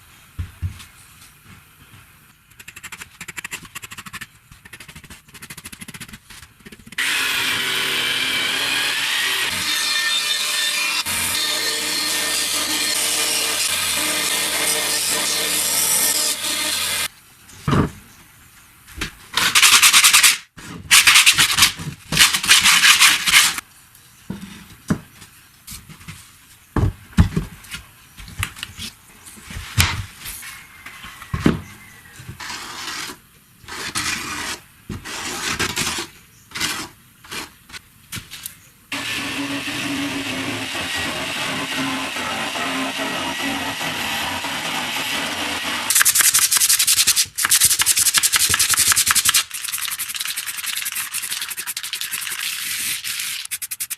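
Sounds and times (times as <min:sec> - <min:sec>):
power tool running: 0:07.0 - 0:17.1, 0:38.9 - 0:46.0
sawing or sanding bursts: 0:07.0 - 0:17.1, 0:38.9 - 0:53.9.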